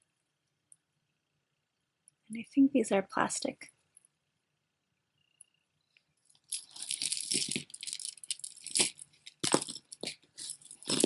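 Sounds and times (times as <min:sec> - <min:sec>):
beads rattling and clicking: 0:06.2 - 0:11.0.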